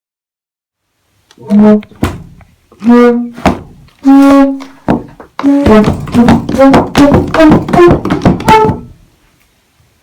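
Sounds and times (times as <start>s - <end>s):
pitched instrument notes: 1.4s - 9.0s.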